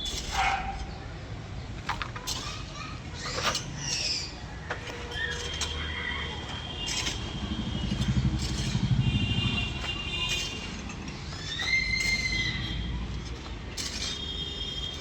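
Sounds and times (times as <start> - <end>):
excavator diesel engine running: 4.8 - 15.0
high-pitched squeals: 10.3 - 15.0.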